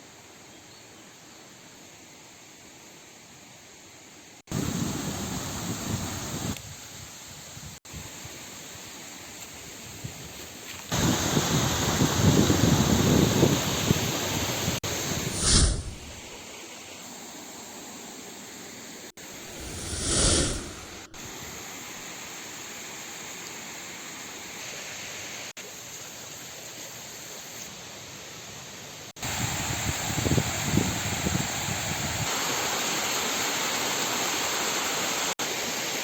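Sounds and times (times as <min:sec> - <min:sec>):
waterfall rushing water: 0:32.3 - 0:36.0.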